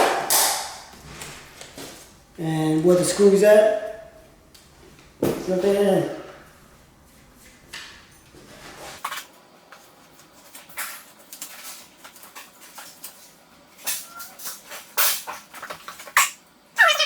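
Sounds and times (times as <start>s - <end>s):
wood pieces knocking and scraping: 0.0s - 9.0s.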